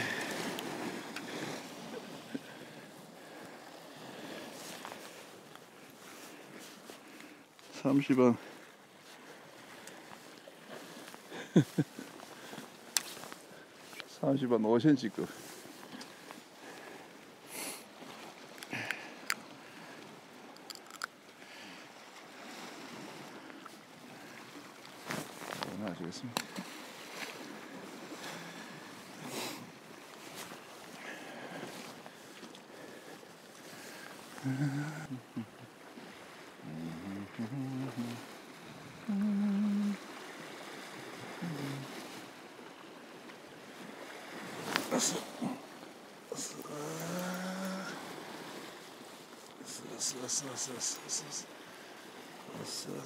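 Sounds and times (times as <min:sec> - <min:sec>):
sea washing against rocks: 0:00.0 - 0:07.1
sea waves on rocky shore: 0:00.0 - 0:53.0
man humming: 0:34.4 - 0:35.7, 0:36.6 - 0:38.3, 0:39.0 - 0:40.0, 0:41.3 - 0:42.0, 0:46.4 - 0:48.0.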